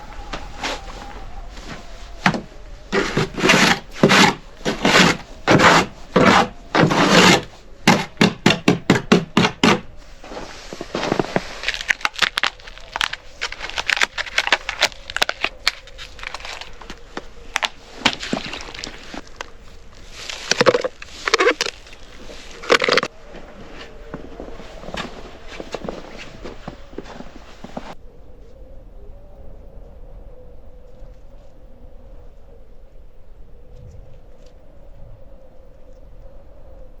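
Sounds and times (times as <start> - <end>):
wood rubbing and scraping strokes: 0.0 - 28.0.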